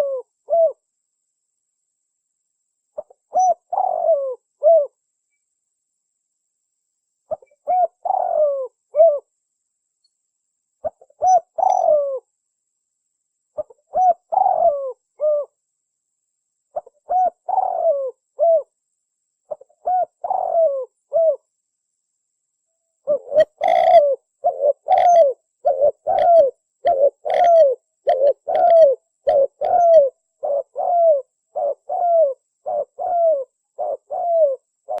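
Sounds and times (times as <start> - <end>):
dove cooing: 0.0 - 0.8, 3.0 - 5.0, 7.3 - 9.3, 10.8 - 12.3, 13.6 - 15.6, 16.8 - 18.7, 19.5 - 21.5, 23.0 - 35.0.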